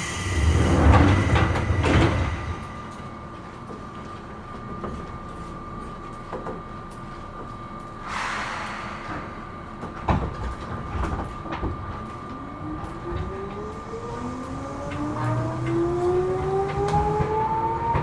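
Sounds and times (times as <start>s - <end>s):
air hiss: 0.0s - 3.0s, 8.0s - 9.8s
electric train hum: 0.0s - 18.0s
sliding door thud: 0.2s - 3.1s.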